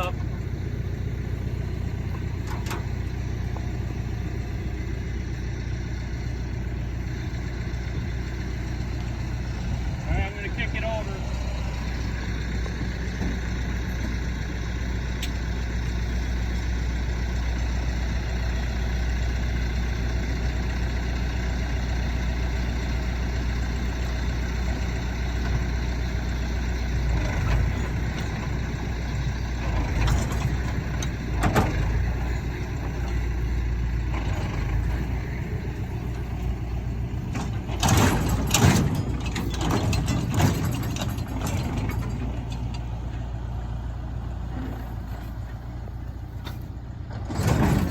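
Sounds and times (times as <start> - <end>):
tractor engine running: 0.0 - 47.9
baler knocking and clattering: 37.3 - 42.8.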